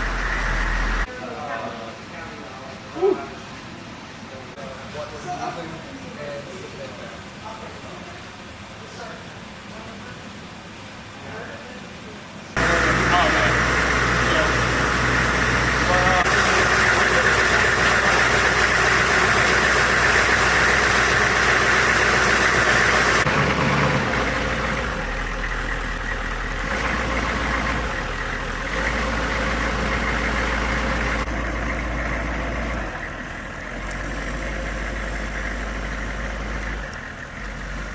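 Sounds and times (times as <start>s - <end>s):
vehicle engine running: 0.0s - 1.1s, 12.6s - 37.9s
noisy hiss: 0.0s - 23.3s.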